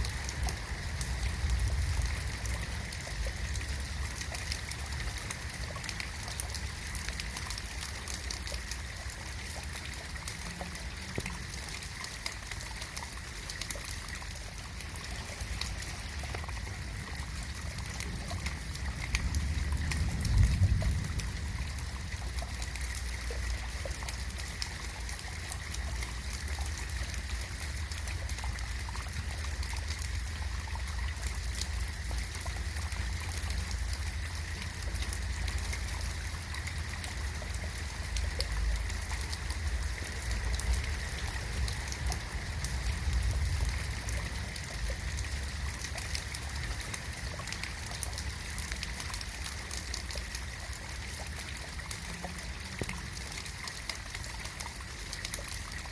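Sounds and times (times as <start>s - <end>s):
rain falling: 0.0s - 55.9s
low rumble: 18.0s - 23.4s.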